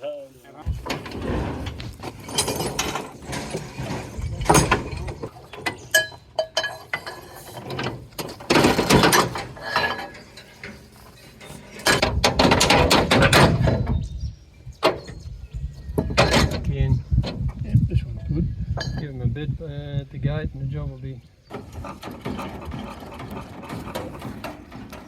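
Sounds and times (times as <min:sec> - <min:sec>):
metal clinks and clanks: 0:00.8 - 0:13.8.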